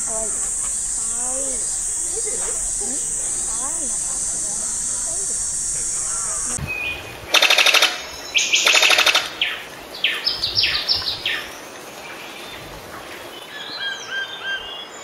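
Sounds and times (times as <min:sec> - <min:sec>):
faint whistled bird notes: 0:00.0 - 0:07.2
harsh rattling bird calls: 0:00.0 - 0:15.0.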